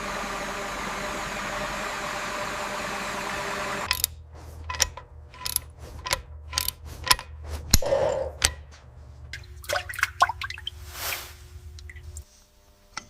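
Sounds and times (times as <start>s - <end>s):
engine running: 0.0s - 9.7s
faint steady hum: 0.0s - 13.0s
metal tools clinking: 3.9s - 9.3s.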